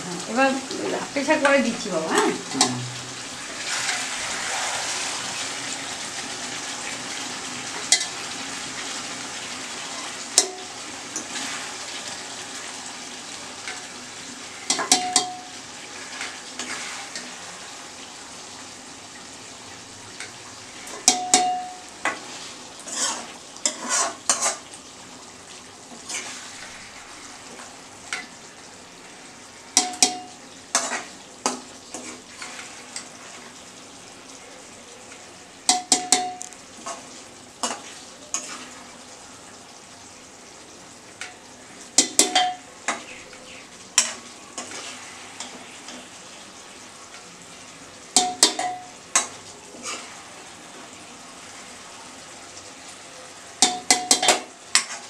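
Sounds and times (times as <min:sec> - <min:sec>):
meat and potatoes sizzling: 0:00.0 - 0:55.0
spoon knocking on metal pan: 0:14.7 - 0:15.5, 0:21.0 - 0:21.8, 0:29.8 - 0:30.3, 0:35.7 - 0:36.5, 0:42.0 - 0:43.0, 0:48.2 - 0:49.3, 0:53.6 - 0:54.9.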